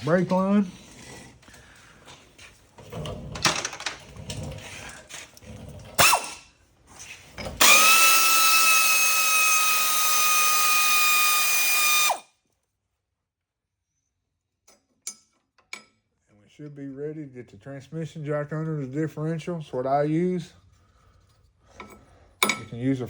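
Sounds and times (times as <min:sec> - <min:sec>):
cordless drill whining: 0:06.0 - 0:06.4, 0:07.5 - 0:12.3.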